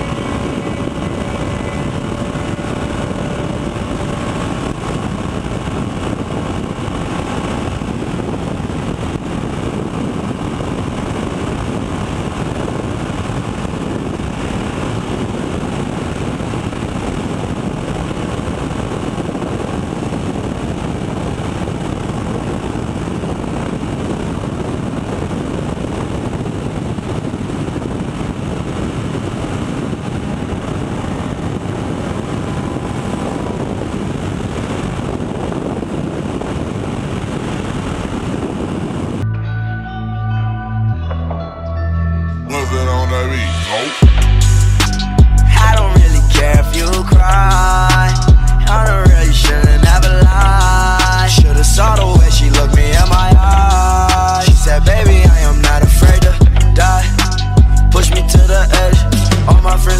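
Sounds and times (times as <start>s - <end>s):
motorcycle engine rumble: 0.0s - 22.6s, 44.0s - 59.9s.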